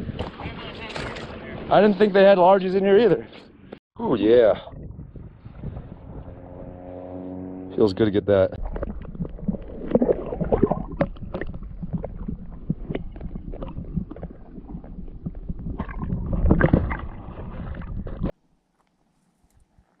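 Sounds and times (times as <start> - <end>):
wind rumbling on microphone: 0.0 - 1.7, 4.1 - 7.0, 8.5 - 18.3
water-like noises: 8.6 - 18.3.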